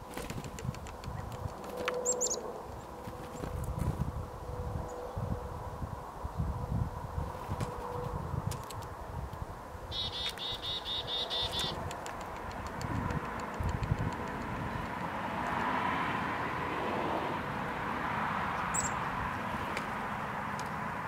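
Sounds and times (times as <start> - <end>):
wind across microphone: 0.0 - 20.8
bird calling repeated notes: 9.9 - 11.8.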